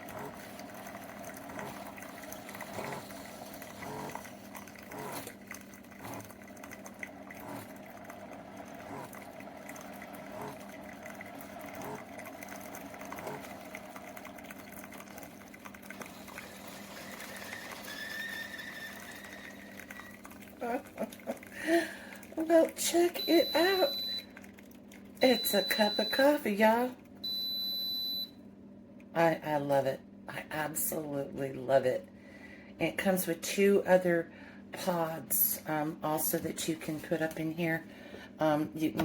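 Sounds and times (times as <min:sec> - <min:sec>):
coffee running into mug: 0:00.0 - 0:26.4
coffee maker pump humming: 0:00.0 - 0:28.4, 0:32.4 - 0:39.0.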